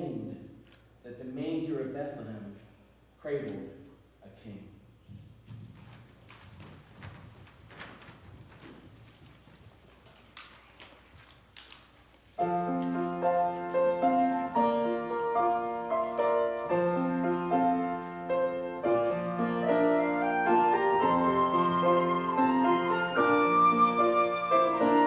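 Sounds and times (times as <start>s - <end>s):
gentle piano melody: 12.4s - 25.0s.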